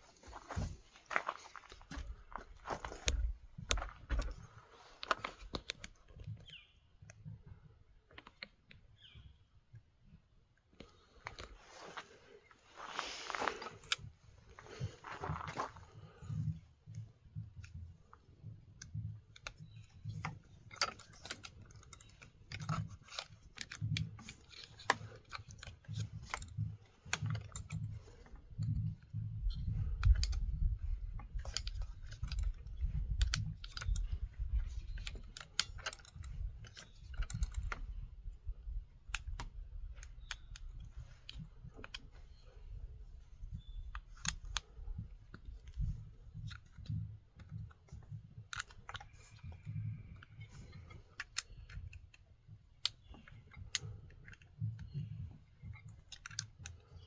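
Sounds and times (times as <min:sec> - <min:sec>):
clicks of parts and tools: 0:01.6 - 0:07.3, 0:13.2 - 0:42.8, 0:43.4 - 0:57.0.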